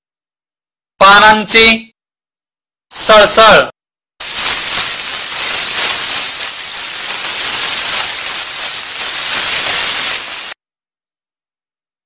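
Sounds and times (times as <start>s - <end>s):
tree leaves rustling: 4.2s - 10.6s.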